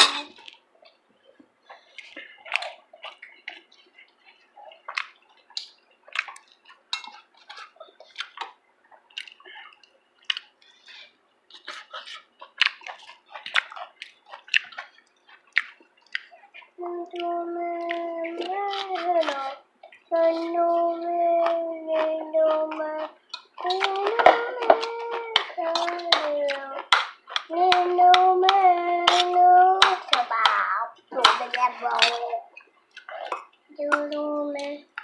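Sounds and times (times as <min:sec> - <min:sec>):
utensils tapping dishes: 0:00.0 - 0:00.6, 0:06.9 - 0:07.8, 0:22.6 - 0:32.4
wet chewing sounds: 0:00.4 - 0:35.0.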